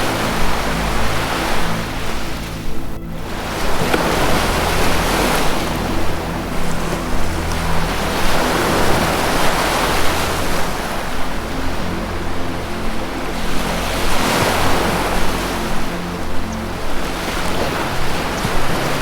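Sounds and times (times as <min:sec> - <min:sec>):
low drone of sustained tones: 0:00.0 - 0:19.0
ocean surf breaking: 0:12.8 - 0:19.0.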